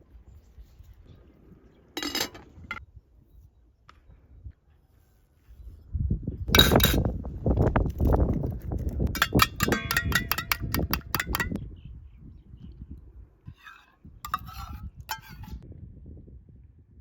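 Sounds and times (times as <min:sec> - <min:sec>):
metal cookware clinking: 0:02.0 - 0:02.8, 0:06.6 - 0:07.1, 0:09.2 - 0:11.6, 0:13.6 - 0:15.6.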